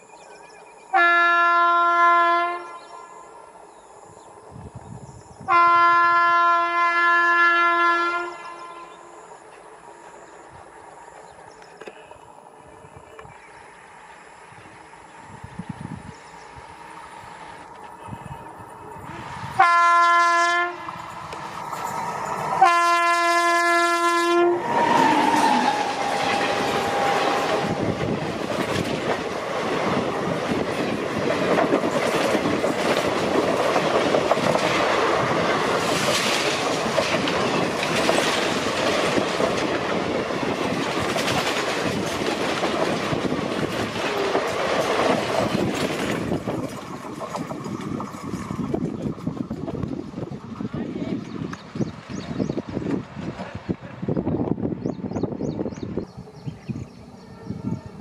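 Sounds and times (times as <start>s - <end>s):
locomotive horn: 0.9s - 3.2s, 5.5s - 9.1s, 19.5s - 21.1s, 22.6s - 27.8s, 57.2s - 58.0s
train wheels clattering over joints: 24.9s - 50.2s.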